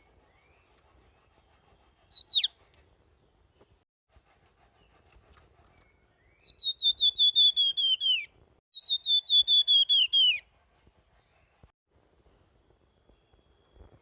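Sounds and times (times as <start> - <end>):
songbird whistling: 2.0 - 2.6, 5.8 - 10.5.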